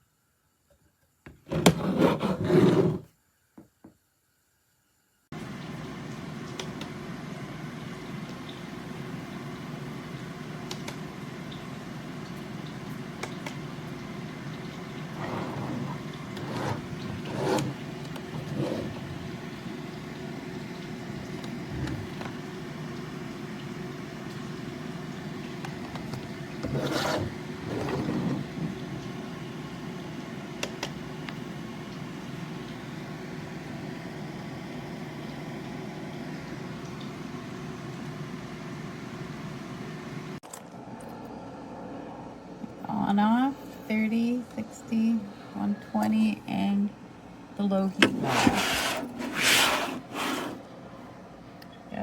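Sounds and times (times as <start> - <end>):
objects moved and rubbed: 15.2 - 19.2, 26.6 - 28.7, 48.0 - 50.6.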